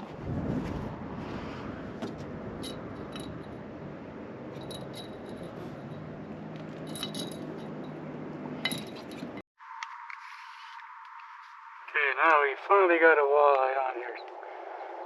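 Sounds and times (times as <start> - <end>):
fishing tackle clicking and clinking: 2.6 - 3.5, 4.6 - 6.0, 6.8 - 8.0, 8.6 - 9.4.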